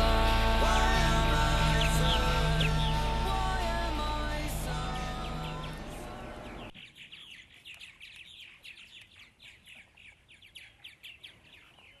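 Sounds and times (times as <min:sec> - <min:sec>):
background music: 0:00.0 - 0:06.7
small birds chirping: 0:00.3 - 0:12.0.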